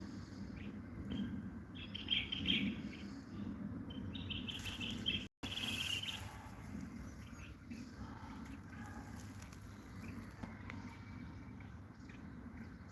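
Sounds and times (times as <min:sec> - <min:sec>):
finch twittering song: 0:00.5 - 0:09.3.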